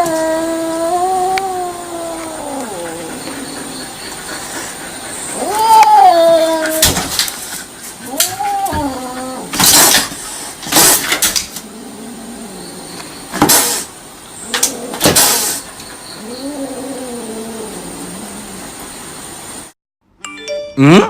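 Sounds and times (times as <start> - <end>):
cat meowing: 5.3 - 7.0, 8.1 - 9.5.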